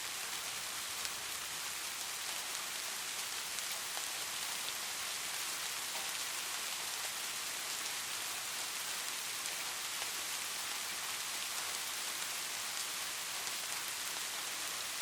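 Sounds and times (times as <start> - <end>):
light rain hiss: 0.0 - 15.0.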